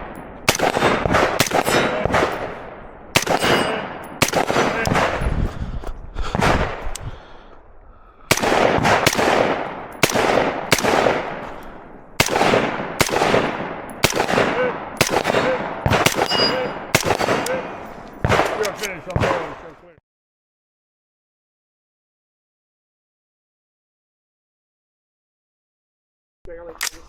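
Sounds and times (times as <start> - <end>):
rifle shots with echo: 0.0 - 5.4, 6.2 - 6.9, 8.2 - 19.9.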